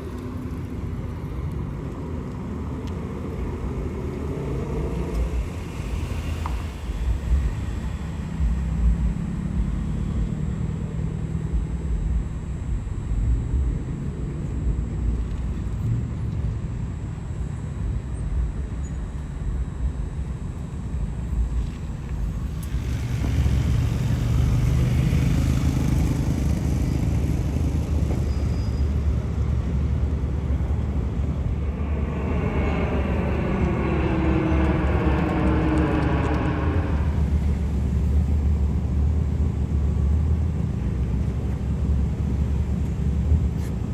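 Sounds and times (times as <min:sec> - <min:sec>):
car engines rumbling: 0:00.0 - 0:43.9
engine revving up: 0:30.2 - 0:38.7.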